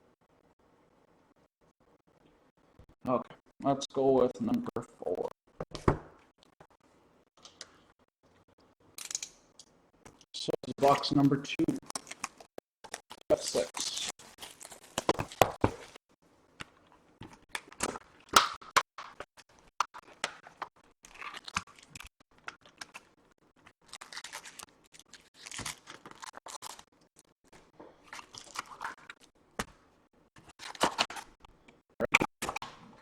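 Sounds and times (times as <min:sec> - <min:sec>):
foil wrapper crinkling and tearing: 0:11.8 - 0:16.0, 0:17.4 - 0:27.3, 0:28.0 - 0:29.3, 0:30.4 - 0:31.4.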